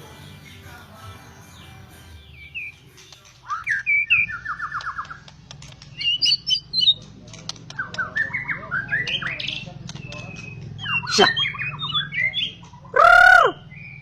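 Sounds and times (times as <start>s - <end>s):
bird singing varied phrases: 0.1s - 14.0s
sharp clicks: 4.7s - 8.1s, 9.8s - 10.9s.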